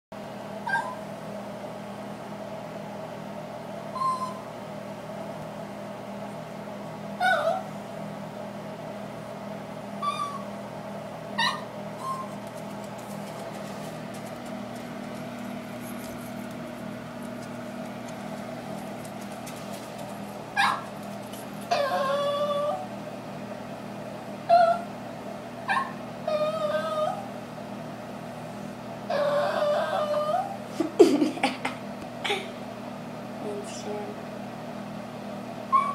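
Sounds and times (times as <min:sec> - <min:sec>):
dog whining: 0:00.6 - 0:01.1, 0:03.9 - 0:04.5, 0:07.2 - 0:07.8, 0:10.0 - 0:10.6, 0:11.4 - 0:12.8, 0:20.6 - 0:23.0, 0:24.5 - 0:24.9, 0:25.6 - 0:27.4, 0:29.1 - 0:30.6, 0:35.7 - 0:35.9.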